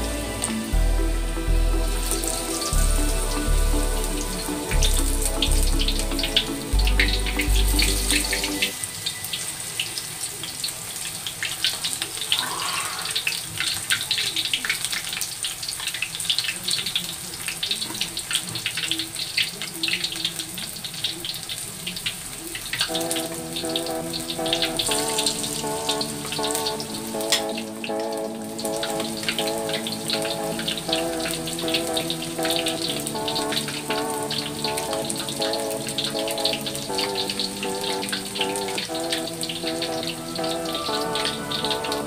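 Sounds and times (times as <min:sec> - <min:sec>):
background music: 0:00.0 - 0:09.4, 0:22.8 - 0:42.0
deep-frying crackling sizzle: 0:00.0 - 0:42.0.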